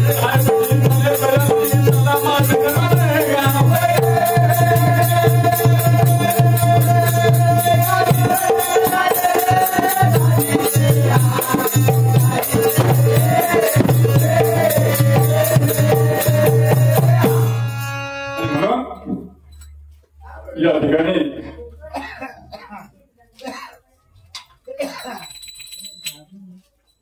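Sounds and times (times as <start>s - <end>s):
drum strokes: 0.0s - 17.9s
jingling rattle percussion: 0.0s - 17.9s, 24.4s - 27.0s
folk ensemble music: 12.8s - 19.4s.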